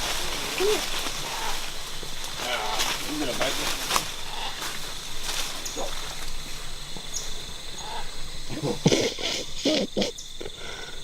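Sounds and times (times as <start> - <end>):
sharp animal calls: 0.0 - 6.4
insect chorus drone: 0.0 - 11.0.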